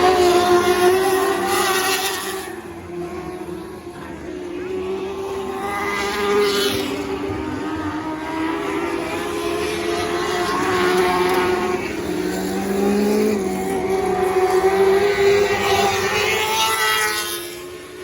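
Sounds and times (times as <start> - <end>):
racing car engines revving: 0.0 - 18.0.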